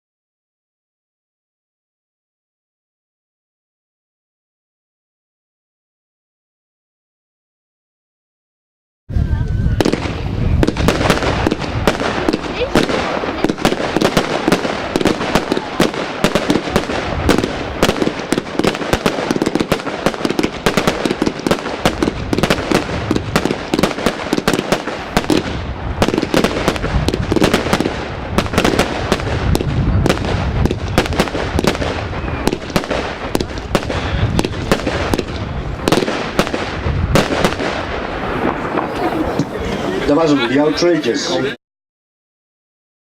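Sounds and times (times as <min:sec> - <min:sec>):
deep firework rumble: 0:09.1 - 0:40.2
firework rapid bangs: 0:09.8 - 0:39.6.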